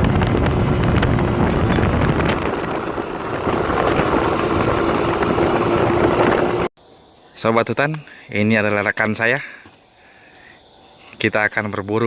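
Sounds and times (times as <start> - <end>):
vehicle engine running: 0.0 - 6.7
wind rumbling on microphone: 0.0 - 6.7.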